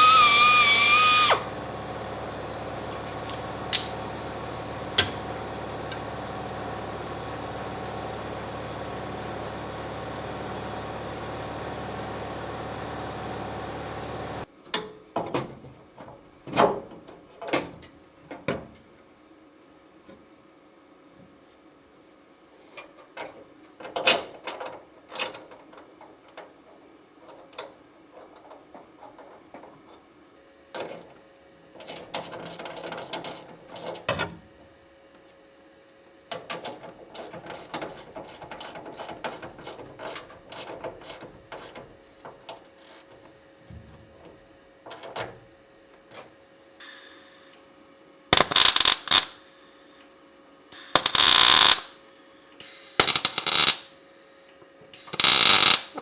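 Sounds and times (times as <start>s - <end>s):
loud bursts of noise: 0.0s - 3.1s, 48.4s - 49.5s, 50.8s - 52.0s, 52.6s - 53.9s, 55.0s - 56.0s
hand tools tapping metal: 48.4s - 49.3s, 50.9s - 51.9s, 53.0s - 53.9s, 55.1s - 56.0s.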